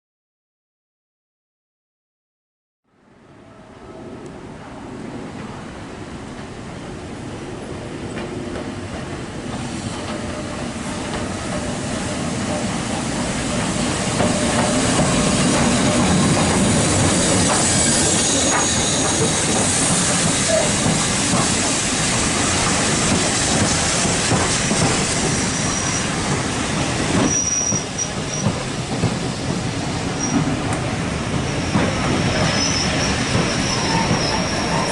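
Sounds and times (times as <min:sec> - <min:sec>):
train rumble and rail clatter: 0:03.2 - 0:34.9
high-pitched wheel squeal: 0:15.9 - 0:20.9, 0:25.1 - 0:26.2, 0:27.2 - 0:28.5, 0:31.5 - 0:34.9.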